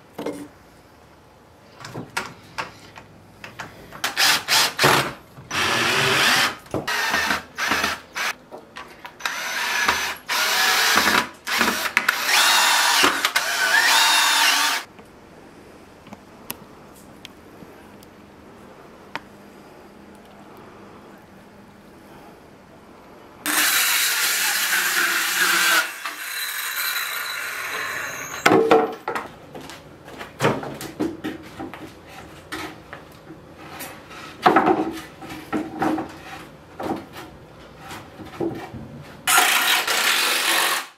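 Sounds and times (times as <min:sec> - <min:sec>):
power drill running: 0:04.1 - 0:08.3, 0:09.2 - 0:14.9, 0:23.5 - 0:28.4, 0:39.3 - 0:40.9.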